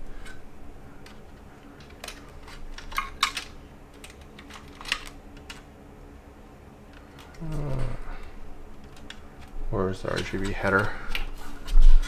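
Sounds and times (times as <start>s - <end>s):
clicks of handling pc parts: 1.0s - 5.7s, 8.8s - 12.0s.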